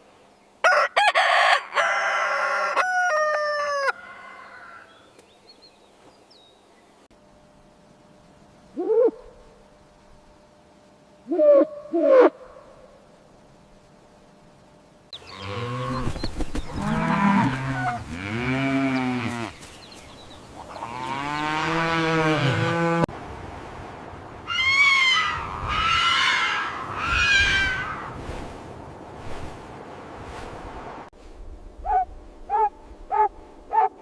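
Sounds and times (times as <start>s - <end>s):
high-pitched animal calls: 24.5s - 28.1s
low-pitched animal calls: 24.5s - 28.2s.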